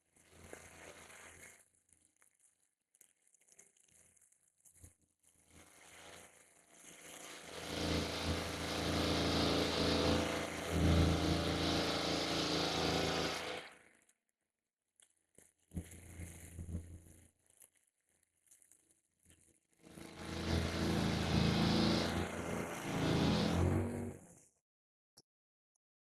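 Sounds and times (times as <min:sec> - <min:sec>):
bush cutter engine running: 0:05.6 - 0:13.9, 0:19.8 - 0:24.3.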